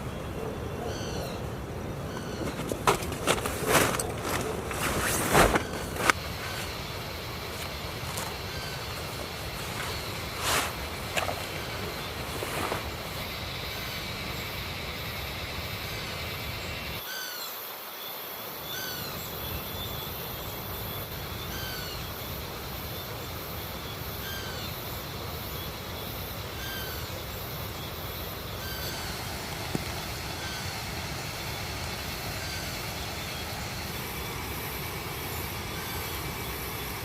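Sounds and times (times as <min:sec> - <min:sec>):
bird calling: 0:00.0 - 0:14.5, 0:26.1 - 0:37.0
river flowing: 0:01.4 - 0:15.8.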